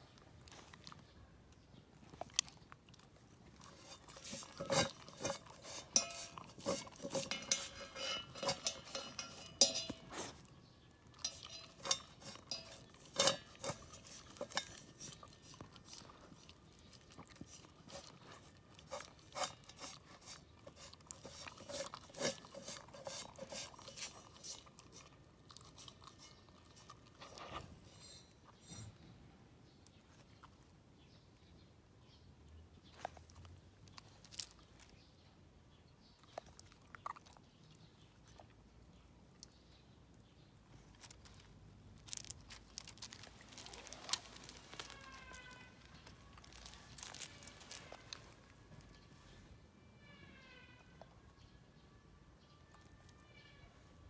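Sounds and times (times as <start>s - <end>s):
dog licking metal pot: 2.3s - 28.0s
pot ringing faintly: 3.8s - 10.3s, 11.2s - 15.1s.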